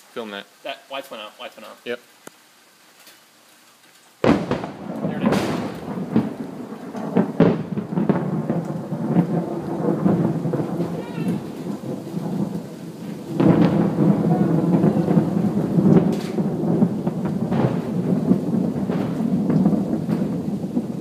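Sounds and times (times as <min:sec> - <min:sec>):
rain falling: 0:00.0 - 0:21.0
thunder cracks and rumble: 0:04.2 - 0:21.0.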